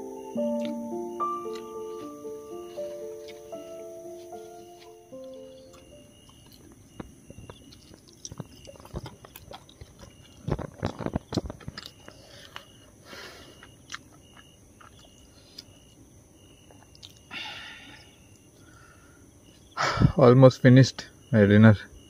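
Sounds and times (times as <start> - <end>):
person chewing and biting food: 0.4 - 16.0, 16.6 - 17.3
mouth clicks: 16.6 - 17.3.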